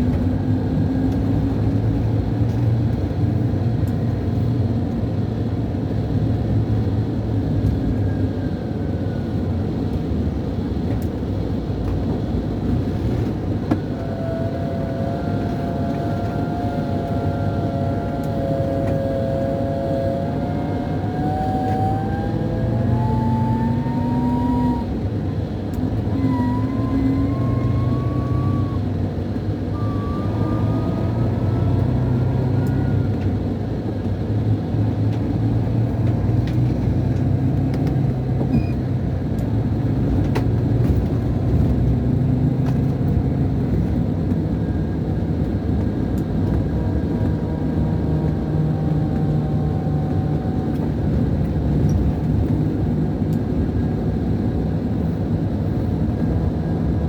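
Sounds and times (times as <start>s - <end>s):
diesel coach engine running: 0.0s - 57.0s
high whistle rising in pitch: 14.0s - 25.0s, 26.0s - 33.2s.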